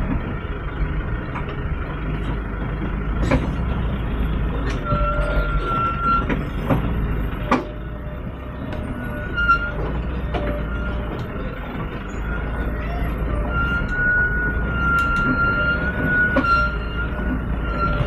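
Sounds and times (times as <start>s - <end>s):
diesel truck engine rumbling: 0.0s - 18.0s.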